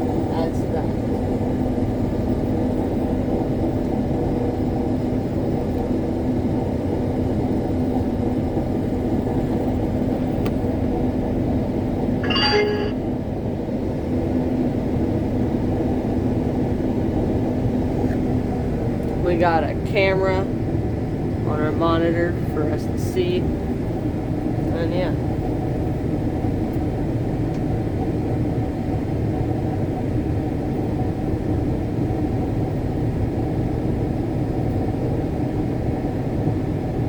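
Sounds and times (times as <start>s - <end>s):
brief higher-pitched sound: 12.2s - 13.0s.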